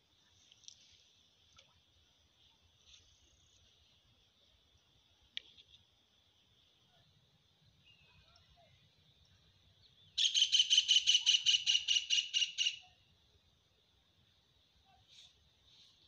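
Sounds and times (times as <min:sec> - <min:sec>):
bird calling sharp repeated notes: 0:10.2 - 0:12.9.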